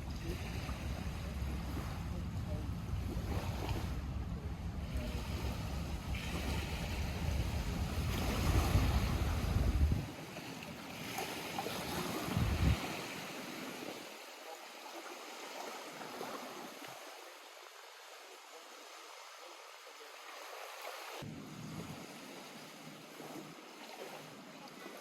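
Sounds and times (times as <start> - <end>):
wind rumbling on microphone: 0.0 - 10.2, 11.7 - 13.1
lake waves lapping at shore: 0.0 - 25.0.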